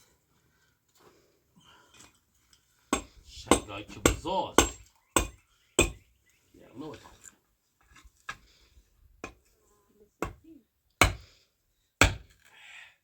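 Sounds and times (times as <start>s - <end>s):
hammer knocking on wood: 12.0s - 12.3s.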